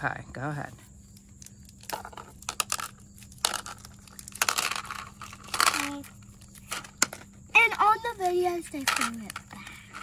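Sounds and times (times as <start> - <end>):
wrapper crinkling: 1.4 - 6.7
candies clicking into a dish: 1.4 - 7.2.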